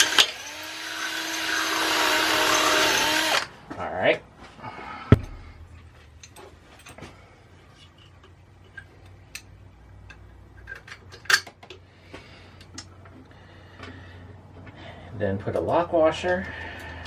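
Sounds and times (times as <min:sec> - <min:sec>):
metal bolts and washers clinking: 0:06.0 - 0:07.1, 0:07.7 - 0:11.8.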